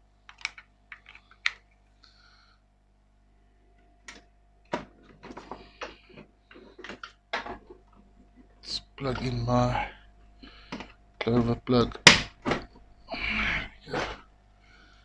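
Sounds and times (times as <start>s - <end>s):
faint steady hum: 0.0s - 15.0s
cables clicking and rattling: 0.2s - 1.8s, 4.0s - 9.5s.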